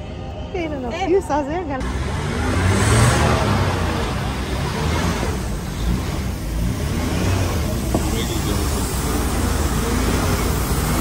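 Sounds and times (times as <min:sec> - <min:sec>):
road noise: 0:00.0 - 0:11.0
vehicle engine rumble: 0:00.0 - 0:11.0.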